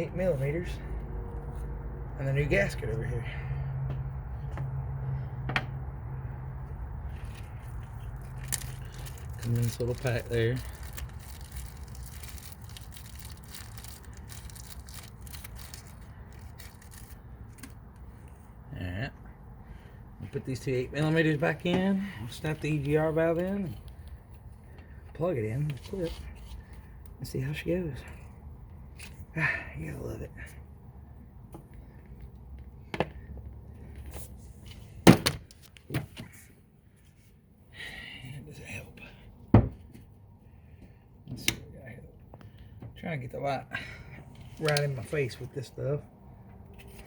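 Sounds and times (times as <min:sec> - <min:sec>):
parts pack rustling: 0:07.1 - 0:17.8.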